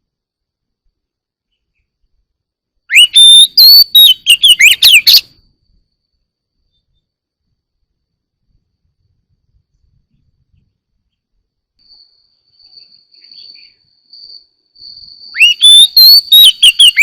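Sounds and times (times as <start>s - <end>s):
bird singing: 2.9s - 5.4s, 10.1s - 17.0s.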